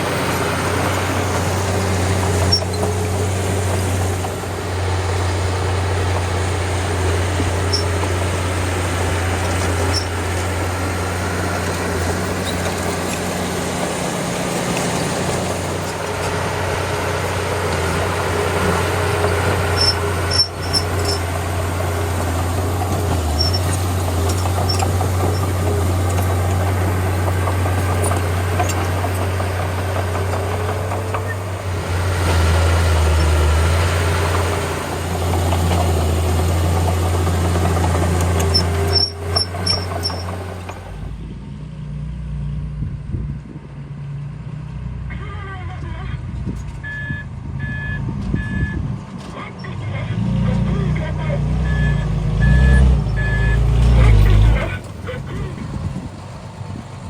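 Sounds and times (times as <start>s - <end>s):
bulldozer diesel engine drone: 0.0s - 57.0s
faint high clicks and squeaks: 1.4s - 3.1s, 7.6s - 8.1s, 9.5s - 10.4s, 11.7s - 13.6s, 19.8s - 21.3s, 23.3s - 26.4s, 30.2s - 31.5s, 38.3s - 40.8s.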